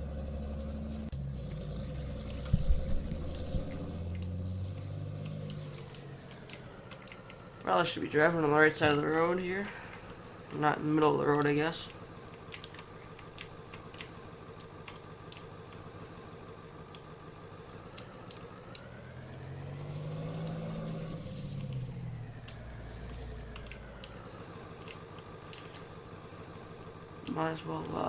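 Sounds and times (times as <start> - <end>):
vehicle engine and road noise: 0.0 - 28.0
light clicks and rattles: 2.2 - 7.5, 8.4 - 17.1, 22.4 - 26.0.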